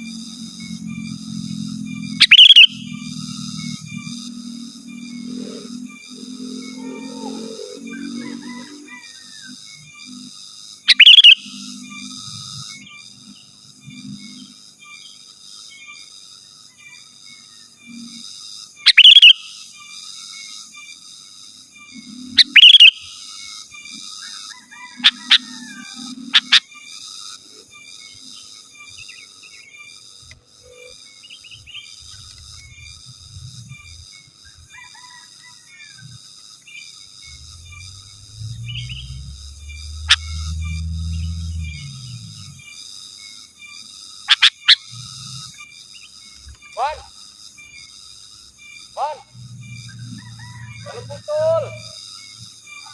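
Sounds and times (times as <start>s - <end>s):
faint high chirring: 0.0s - 52.9s
insect chorus: 0.0s - 52.9s
bird wavering call: 1.9s - 3.1s, 5.2s - 9.6s, 10.9s - 11.6s, 18.9s - 19.6s, 22.4s - 23.2s, 24.6s - 26.7s, 37.2s - 42.6s, 44.3s - 44.9s, 46.8s - 47.1s, 49.0s - 51.9s
low rumble: 37.2s - 42.6s.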